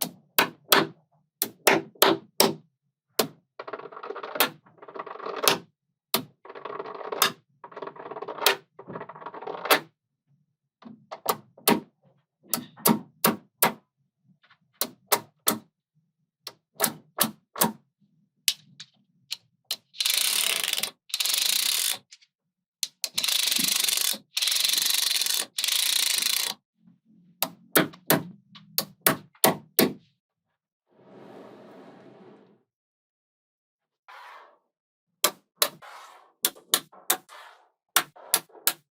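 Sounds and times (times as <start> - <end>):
magnetic balls clicking together: 18.5 - 22.2, 22.8 - 26.6.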